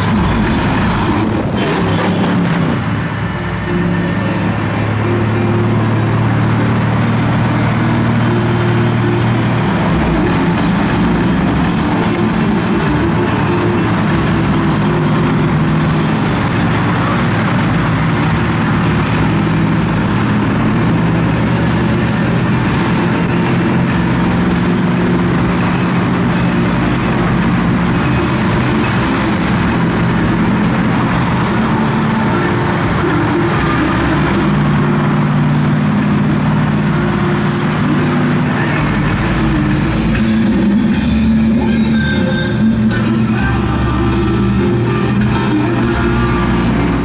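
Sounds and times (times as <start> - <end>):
wind noise: 0.0 - 3.4
car engine droning: 0.0 - 47.0
road noise: 0.0 - 47.0.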